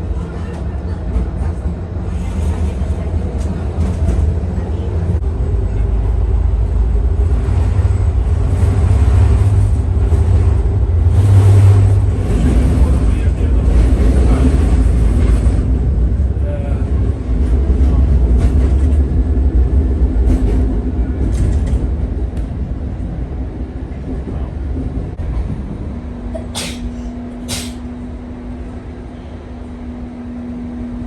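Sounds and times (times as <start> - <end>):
tram rumbling on rails: 0.0 - 31.0
short hisses: 26.6 - 27.9.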